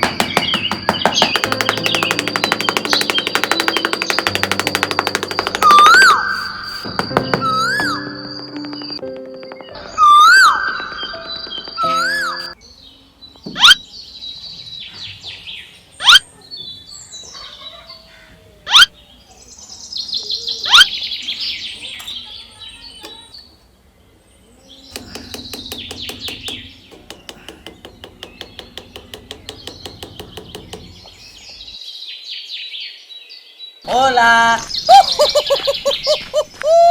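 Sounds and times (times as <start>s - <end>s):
rapid ticking rhythm: 0.0s - 12.6s, 25.0s - 31.4s
birds chirping: 0.0s - 32.2s.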